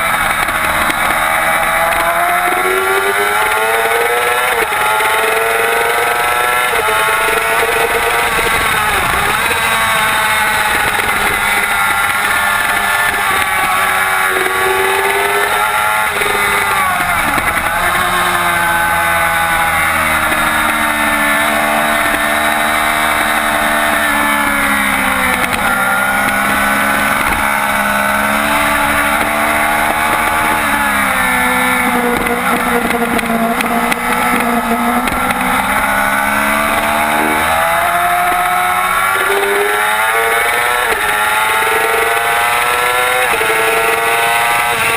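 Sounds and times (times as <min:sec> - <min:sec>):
motorcycle engine revving high: 0:00.0 - 0:44.9.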